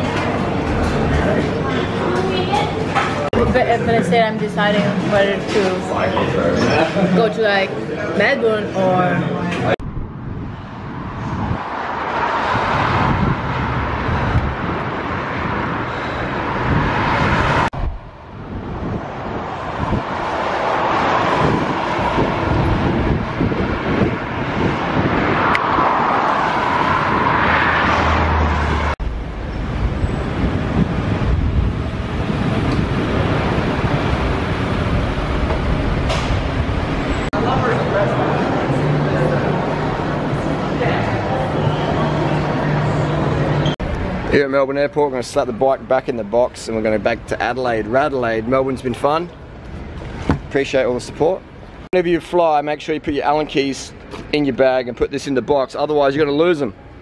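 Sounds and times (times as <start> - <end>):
road traffic: 0.0 - 57.0
wind on microphone: 9.8 - 38.6.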